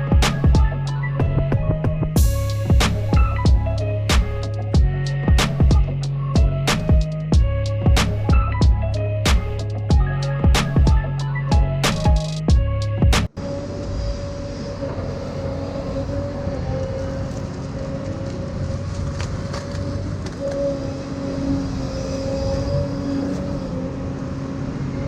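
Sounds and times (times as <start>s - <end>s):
high whine: 0.0s - 18.4s
excavator engine drone: 0.0s - 25.0s.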